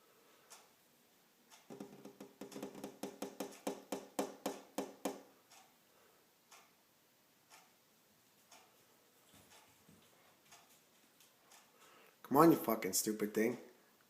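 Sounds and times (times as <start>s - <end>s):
woodpecker tapping on window glass: 1.7s - 5.3s.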